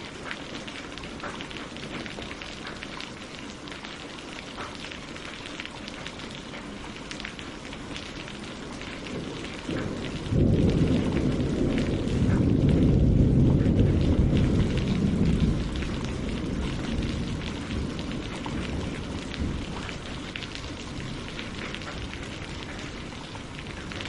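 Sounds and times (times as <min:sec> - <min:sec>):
rain on leaves and water: 0:00.0 - 0:24.0
low rumble of thunder: 0:08.7 - 0:24.0.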